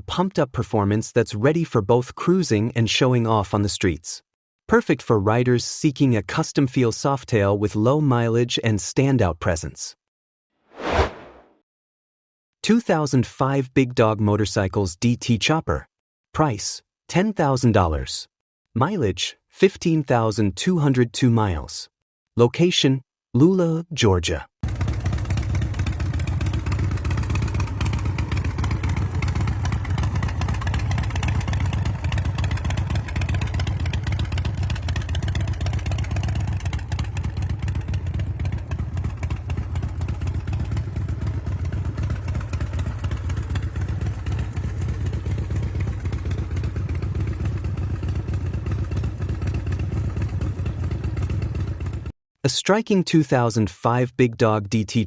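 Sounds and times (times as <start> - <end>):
motorcycle engine running steadily: 24.6 - 52.1.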